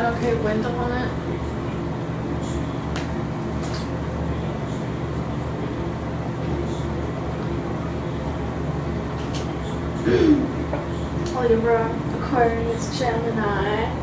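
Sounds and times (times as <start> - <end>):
constant hum: 0.0 - 14.0.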